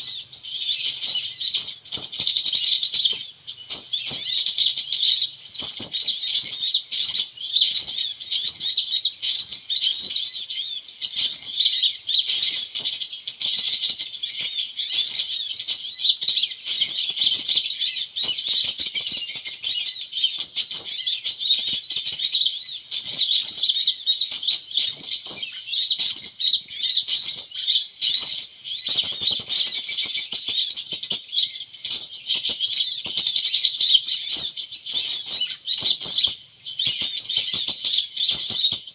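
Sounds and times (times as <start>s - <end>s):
small birds twittering: 0.0s - 38.9s.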